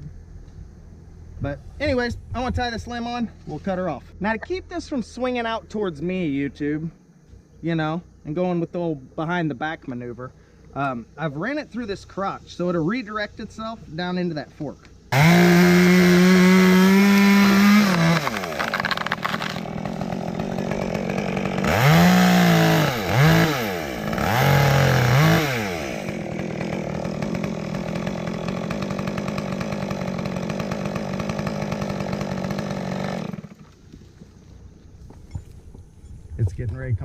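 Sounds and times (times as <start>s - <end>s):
two-stroke chainsaw revving: 15.1s - 33.8s.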